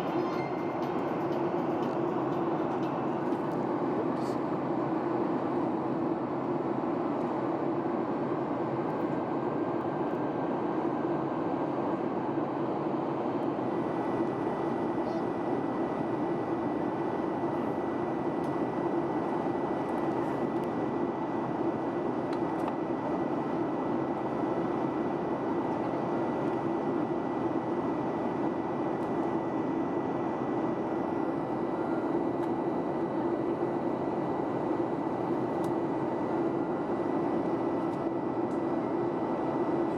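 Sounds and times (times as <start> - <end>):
faint high tone: 0.0 - 1.0
aircraft cabin noise: 0.0 - 39.9.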